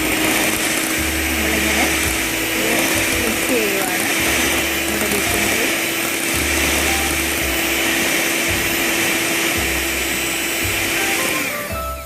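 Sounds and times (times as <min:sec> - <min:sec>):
mixer grinder motor humming: 0:00.0 - 0:12.0.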